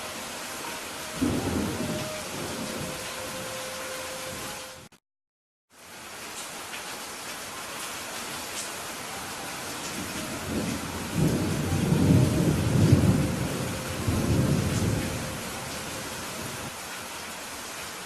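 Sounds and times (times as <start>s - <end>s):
steady rain falling: 0.0s - 4.9s, 5.7s - 18.0s
low roll of thunder: 1.2s - 3.5s, 10.0s - 16.7s.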